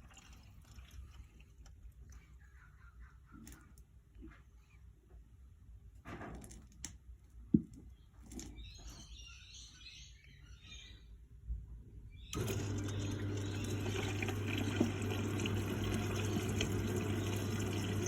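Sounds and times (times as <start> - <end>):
washing machine low hum: 12.3 - 18.0.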